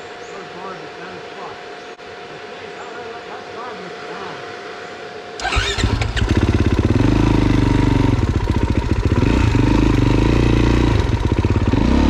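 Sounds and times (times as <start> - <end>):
dirt bike engine revving and idling: 5.4 - 12.0.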